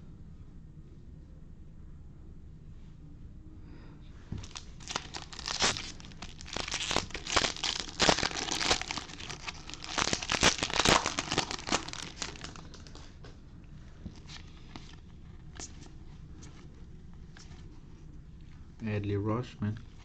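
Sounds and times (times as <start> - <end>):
foil wrapper tearing and crinkling: 4.4 - 13.0.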